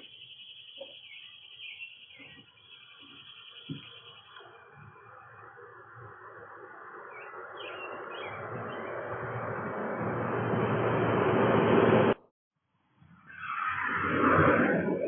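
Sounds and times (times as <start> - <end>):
bird chirps: 0.0 - 5.4, 7.0 - 9.2
rushing noise: 5.1 - 12.3.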